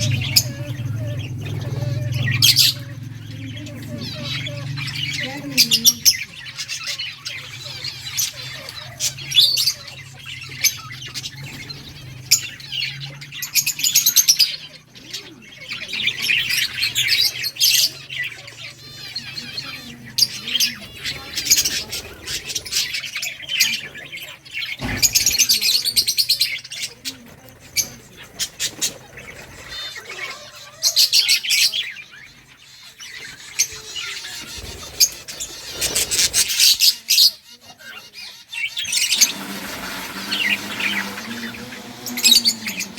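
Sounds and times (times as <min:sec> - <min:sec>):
bird squawks: 0:00.0 - 0:42.9
budgerigars chattering and chirping: 0:00.0 - 0:42.9.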